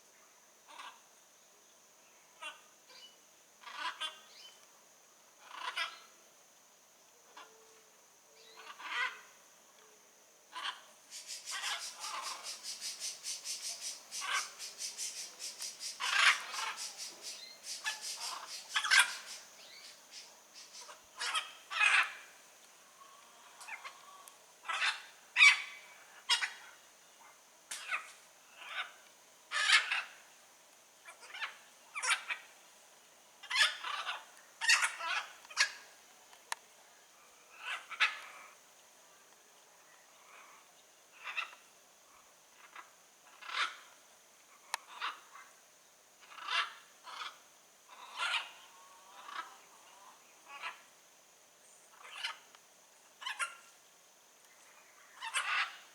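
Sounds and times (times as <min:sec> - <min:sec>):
faint high-pitched whine: 0:00.0 - 0:55.9
macaws squawking: 0:10.6 - 0:22.2, 0:55.2 - 0:55.8.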